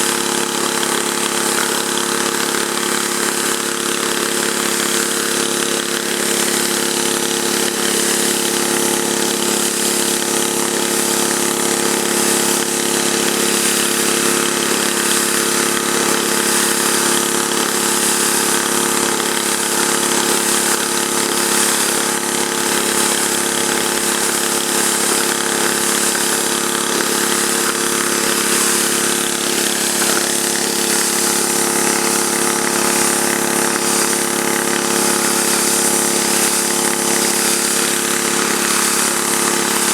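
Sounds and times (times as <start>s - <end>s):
water jet hissing on pavement: 0.0s - 39.9s
petrol engine running: 22.0s - 39.9s.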